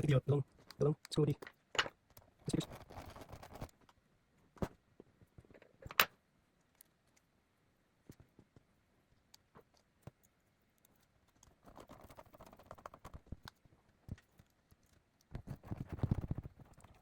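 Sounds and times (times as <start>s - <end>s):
small laptop parts clicking and rattling: 0.0s - 4.0s, 9.2s - 17.0s.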